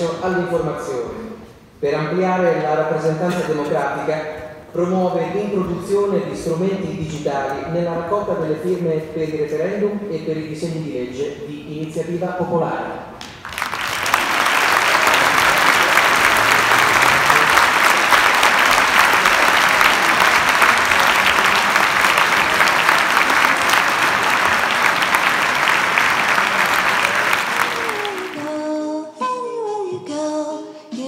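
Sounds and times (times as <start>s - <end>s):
audience applauding: 13.2s - 28.6s.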